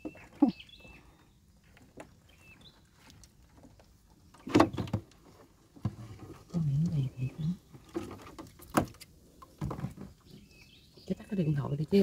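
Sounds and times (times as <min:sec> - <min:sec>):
small bird chirping: 0:00.0 - 0:01.6, 0:02.2 - 0:03.1, 0:06.6 - 0:07.8
clicks and knocks in plastic boat: 0:03.0 - 0:06.5, 0:07.7 - 0:10.4.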